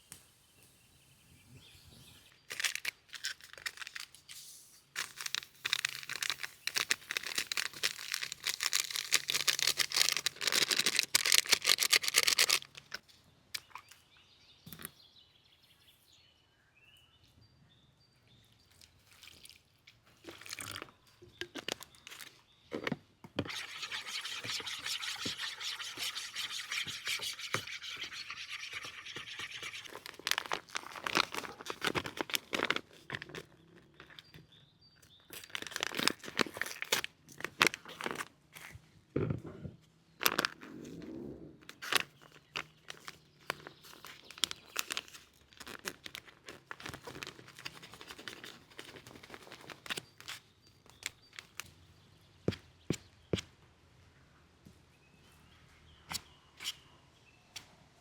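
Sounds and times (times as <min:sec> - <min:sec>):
scraping and rubbing: 0:23.4 - 0:31.7.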